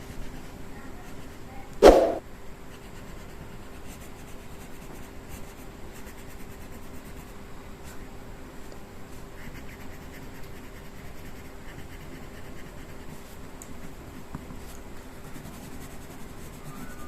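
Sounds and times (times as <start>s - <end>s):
faint steady hum: 0.0s - 17.0s
colouring tool scratching paper: 9.3s - 13.4s, 15.2s - 17.0s.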